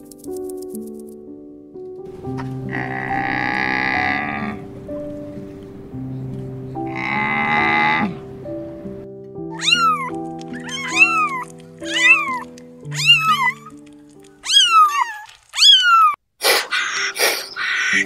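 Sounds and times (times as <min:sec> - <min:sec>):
soft piano music: 0:00.0 - 0:16.0, 0:17.5 - 0:18.0
rough animal call: 0:02.4 - 0:04.7, 0:06.8 - 0:08.3, 0:09.5 - 0:18.0
kittens meowing: 0:02.6 - 0:04.6, 0:09.5 - 0:18.0.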